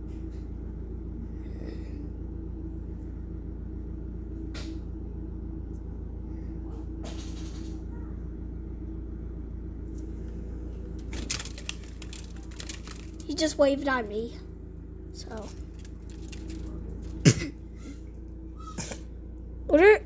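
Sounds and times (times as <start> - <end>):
vehicle engine humming: 0.0 - 20.0
clicks and handling bumps: 10.9 - 14.0, 15.2 - 17.5.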